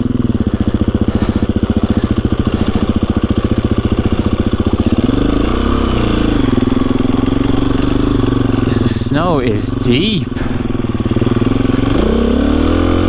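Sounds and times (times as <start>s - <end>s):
dirt bike engine chugging: 0.0s - 13.0s.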